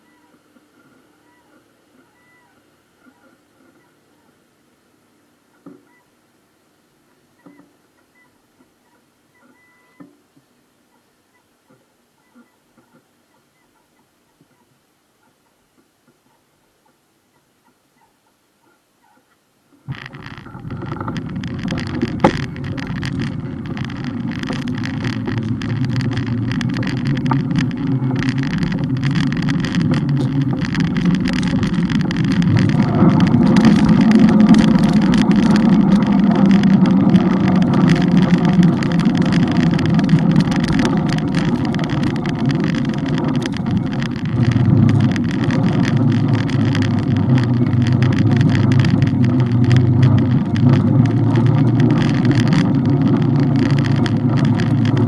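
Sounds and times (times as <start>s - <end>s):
wind: 0.0s - 55.0s
road rumble: 19.8s - 55.0s.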